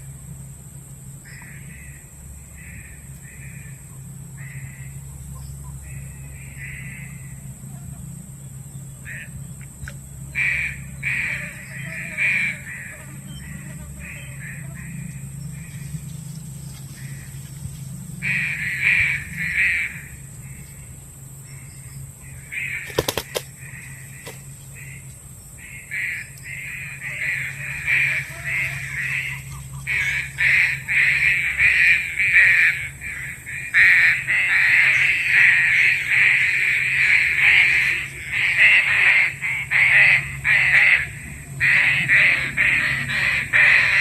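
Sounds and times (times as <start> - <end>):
pigeon calling rough notes: 10.3 - 44.0.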